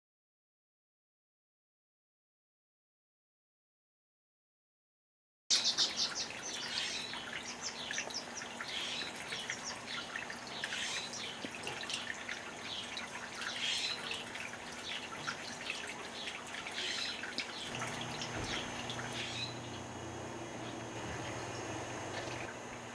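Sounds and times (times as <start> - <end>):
small birds chirping: 5.5 - 22.5.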